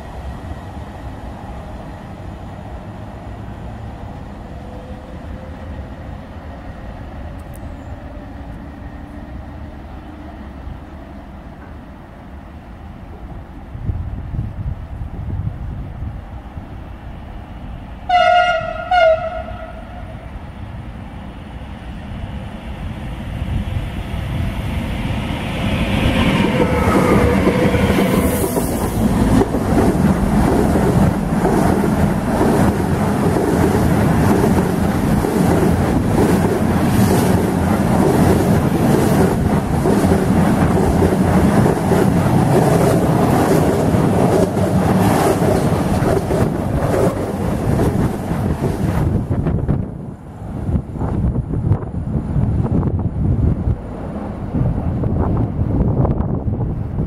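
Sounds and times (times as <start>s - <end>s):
freight train rumbling past: 0.0s - 57.0s
train horn blasts: 18.1s - 20.2s, 26.2s - 28.7s.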